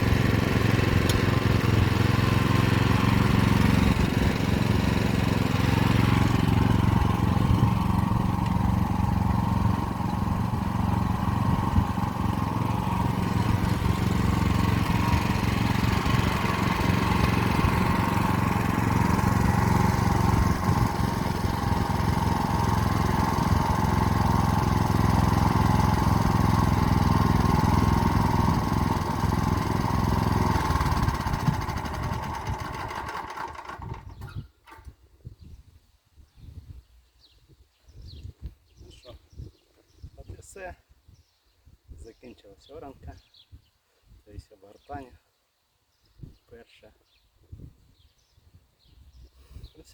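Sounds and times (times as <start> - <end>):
walk-behind tractor engine running: 0.0 - 34.9.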